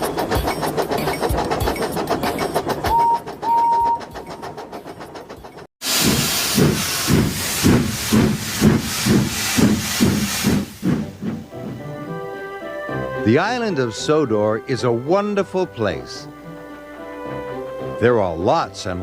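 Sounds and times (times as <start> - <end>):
steam engine chuffing: 0.0 - 13.9.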